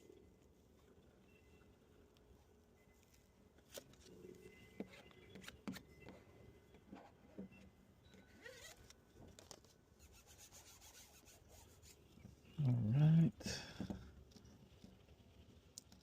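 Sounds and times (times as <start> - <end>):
plastic squeegee ticks and squeaks: 6.8 - 12.4.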